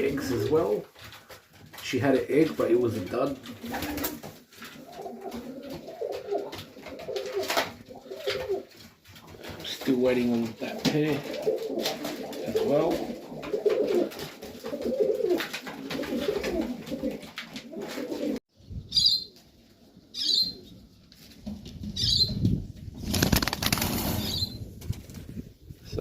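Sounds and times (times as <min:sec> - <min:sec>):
pigeons cooing: 0:03.4 - 0:09.6, 0:10.8 - 0:18.4
pigeon wings flapping: 0:03.4 - 0:18.4, 0:23.0 - 0:25.3.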